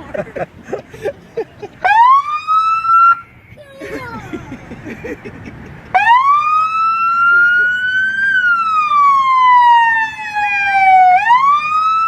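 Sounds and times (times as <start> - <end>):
police siren wailing: 1.8 - 3.3, 5.9 - 12.0.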